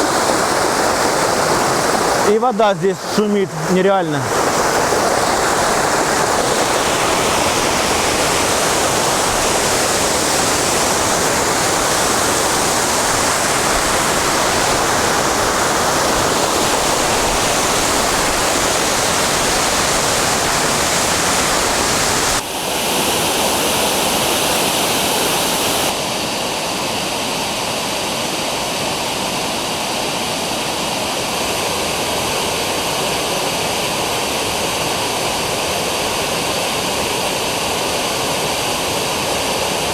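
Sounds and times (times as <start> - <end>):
waterfall rushing roar: 0.0 - 39.9.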